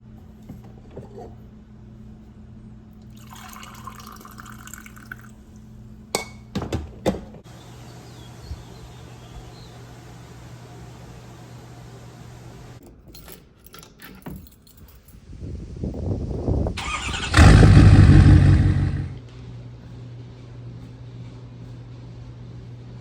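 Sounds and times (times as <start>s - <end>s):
water running: 3.1s - 5.4s, 7.5s - 12.8s
steady low hum: 7.5s - 12.8s.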